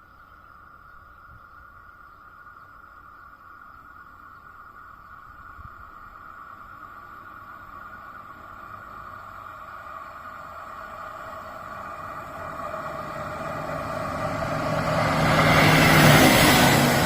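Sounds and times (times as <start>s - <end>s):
train approaching: 6.1s - 17.0s.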